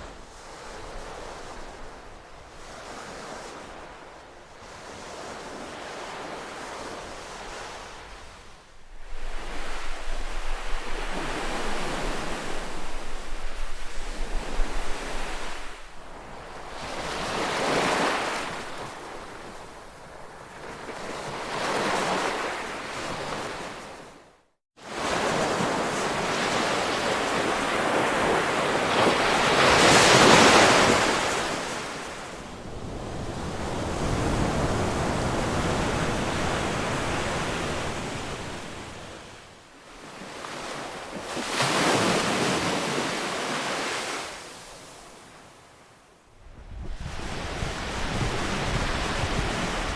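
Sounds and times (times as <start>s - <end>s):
ocean waves surging: 8.9s - 19.1s, 39.9s - 45.4s.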